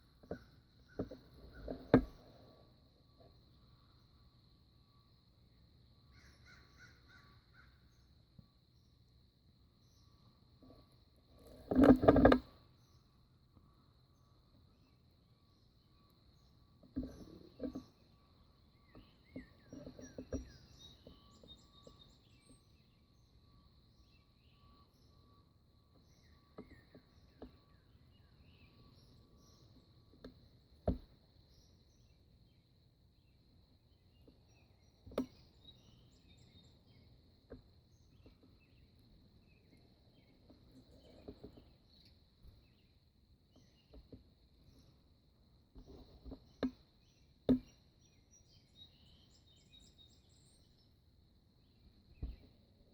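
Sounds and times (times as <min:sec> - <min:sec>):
bird chirps: 0:16.0 - 0:29.9, 0:45.9 - 0:51.0.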